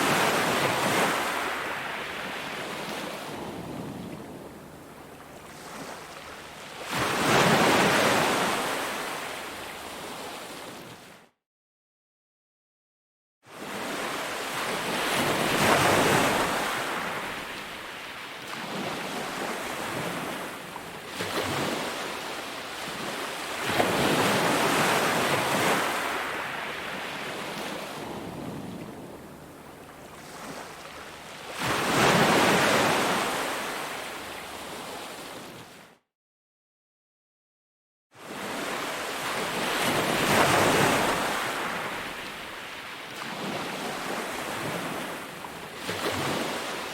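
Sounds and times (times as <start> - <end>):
ocean waves breaking on beach: 0.0 - 11.1, 13.5 - 35.8, 38.2 - 46.9.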